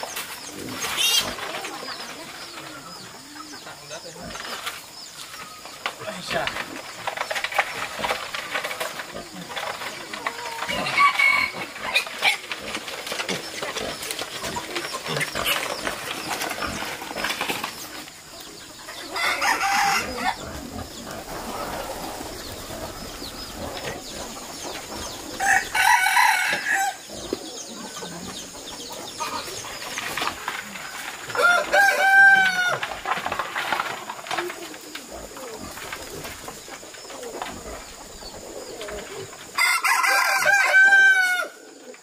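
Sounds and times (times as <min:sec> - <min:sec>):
rooster crowing: 0:10.7 - 0:11.7, 0:19.1 - 0:20.4, 0:25.4 - 0:27.0, 0:31.3 - 0:32.9, 0:39.6 - 0:41.6.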